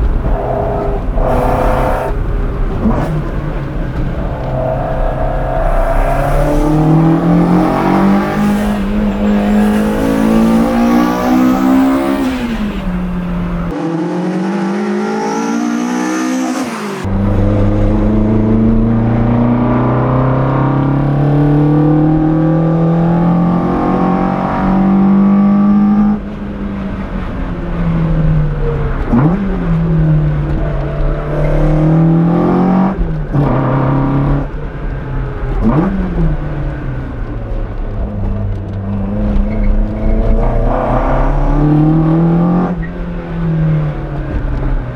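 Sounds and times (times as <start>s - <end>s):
car engine revving hard: 0.0s - 26.2s.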